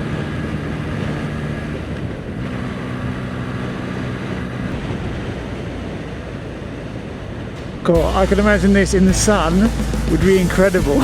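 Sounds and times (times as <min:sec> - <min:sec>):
wind on microphone: 0:00.0 - 0:08.6
motorcycle engine cruising: 0:00.0 - 0:11.0.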